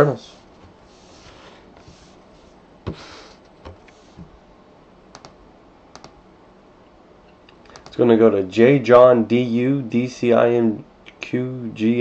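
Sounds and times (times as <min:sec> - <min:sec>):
computer keyboard clicks: 0:05.1 - 0:06.2, 0:07.6 - 0:08.0.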